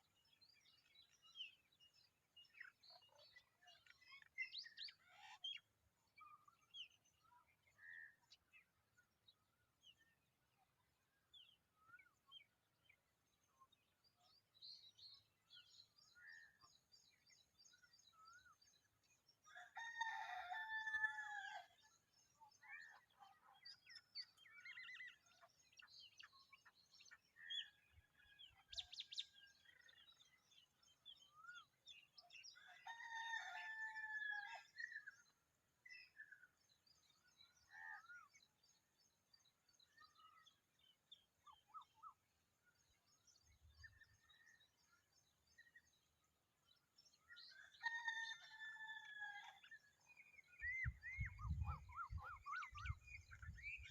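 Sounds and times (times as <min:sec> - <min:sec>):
small birds chirping: 0:00.0 - 0:33.5, 0:34.8 - 0:48.2, 0:49.6 - 0:53.9
rooster crowing: 0:19.6 - 0:21.6.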